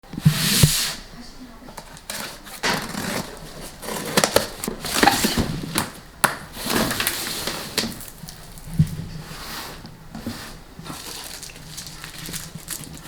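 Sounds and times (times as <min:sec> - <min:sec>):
plastic parts clicking and knocking: 0:01.7 - 0:07.2
packaging rustling and crinkling: 0:01.8 - 0:13.0.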